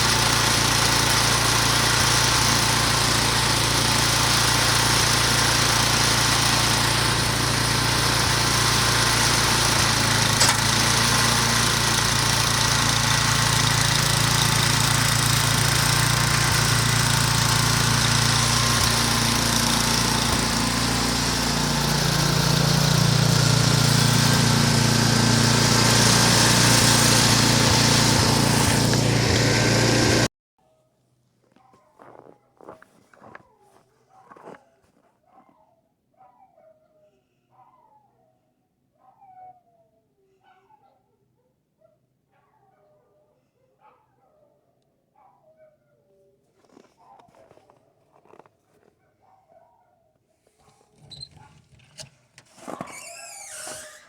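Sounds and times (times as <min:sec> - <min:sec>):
snowblower engine running: 0:00.0 - 0:30.3, 0:32.0 - 0:35.0, 0:46.6 - 0:48.9, 0:52.4 - 0:54.0.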